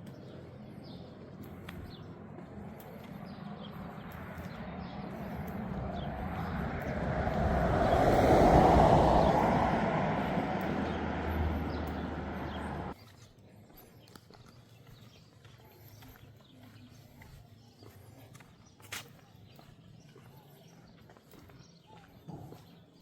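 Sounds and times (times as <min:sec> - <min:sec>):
vehicle driving past: 0:03.8 - 0:13.0.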